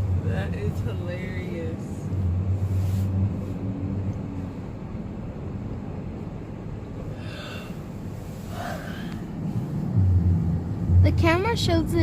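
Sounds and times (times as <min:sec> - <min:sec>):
car cabin rumble: 0:00.0 - 0:12.0
breathy gasp or sigh: 0:07.1 - 0:07.8.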